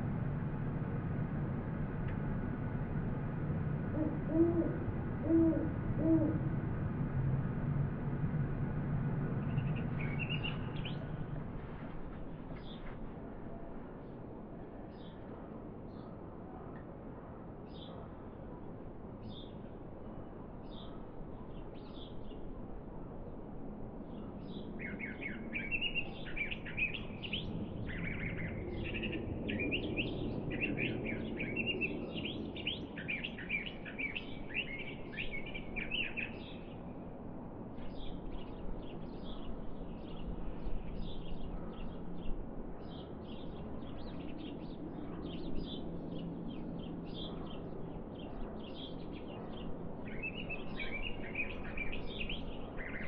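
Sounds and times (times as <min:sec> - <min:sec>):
low background rumble: 0:00.0 - 0:12.8
songbirds chirping: 0:09.1 - 0:16.9, 0:19.2 - 0:53.0.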